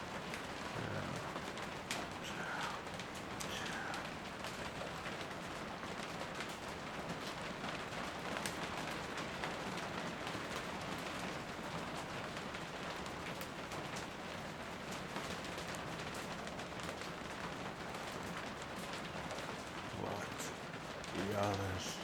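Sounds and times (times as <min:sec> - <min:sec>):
steady rain hiss: 0:00.0 - 0:22.0
raindrops ticking: 0:00.1 - 0:07.4, 0:17.7 - 0:22.0.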